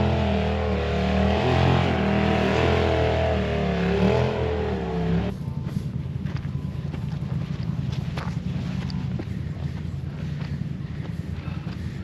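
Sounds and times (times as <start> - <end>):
vehicle engine revving: 0.0 - 5.4.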